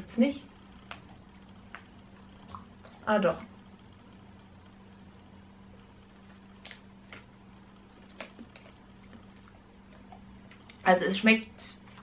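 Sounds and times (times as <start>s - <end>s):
low steady hum: 0.0s - 12.0s
faint crunching of dog treat: 6.2s - 10.9s.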